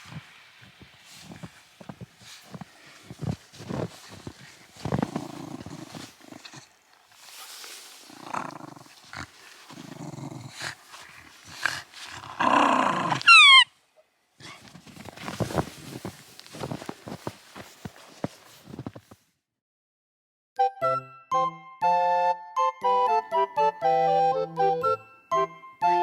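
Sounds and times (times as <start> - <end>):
dog growling: 4.8 - 6.7, 8.0 - 13.6
high falling squeak: 13.3 - 13.7.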